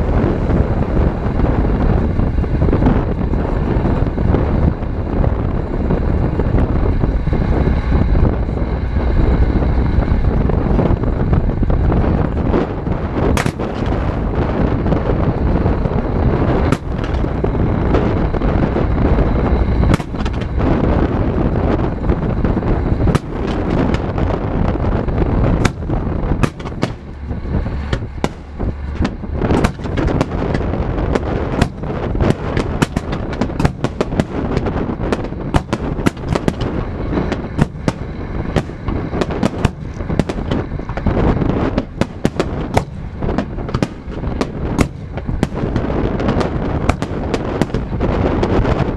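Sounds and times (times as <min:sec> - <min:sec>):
rumble of firework bursts: 0:00.0 - 0:48.9
sharp firework cracks: 0:13.2 - 0:18.1, 0:19.4 - 0:21.0, 0:22.6 - 0:48.9.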